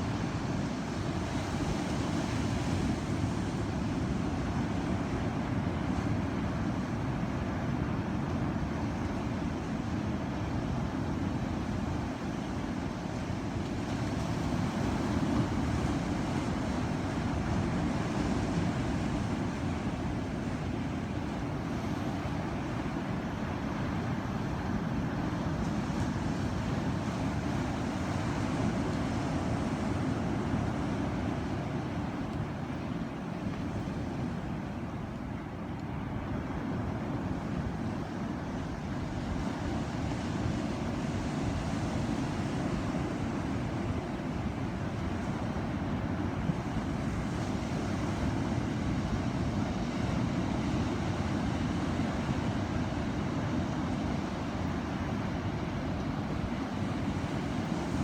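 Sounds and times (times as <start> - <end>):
ocean surf rushing: 14.0 - 58.0.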